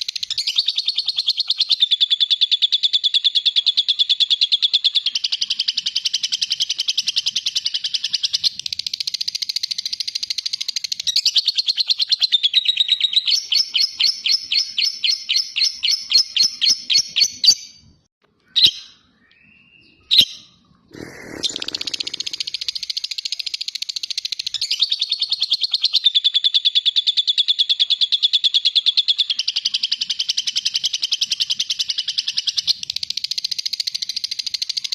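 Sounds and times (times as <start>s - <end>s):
short sharp bird chirps: 15.6s - 25.6s
lovebird chattering trill: 20.1s - 26.6s.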